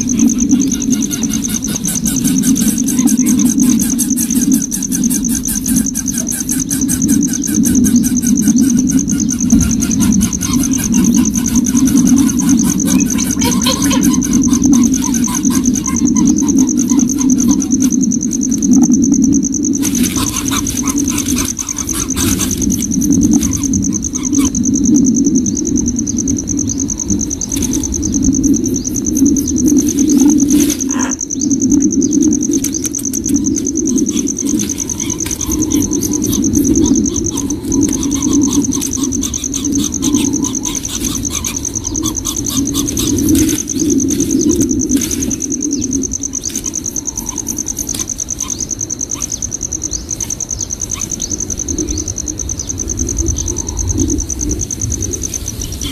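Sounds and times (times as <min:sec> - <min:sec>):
high-pitched insect trill: 0:00.0 - 0:55.9
low pulsing hum: 0:00.0 - 0:55.9
scattered clicks: 0:31.8 - 0:48.5.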